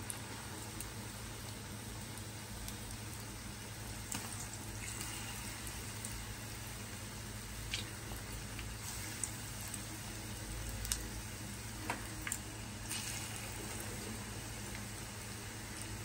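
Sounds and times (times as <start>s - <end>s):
sharp pops of frying: 0.0s - 6.3s, 7.6s - 14.0s
oil sizzling: 0.0s - 16.0s.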